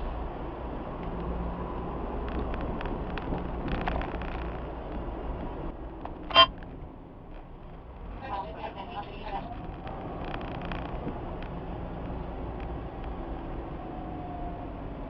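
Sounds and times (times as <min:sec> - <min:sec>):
road rumble: 0:00.0 - 0:15.0
short high-pitched beep: 0:06.3 - 0:06.5.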